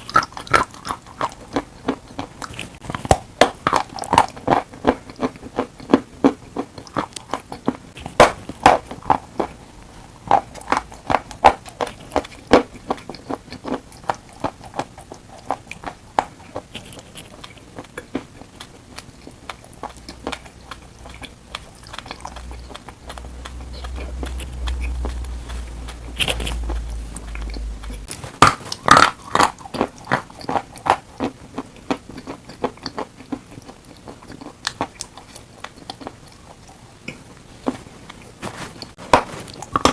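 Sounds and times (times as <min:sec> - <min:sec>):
low rumble: 0:22.2 - 0:28.1.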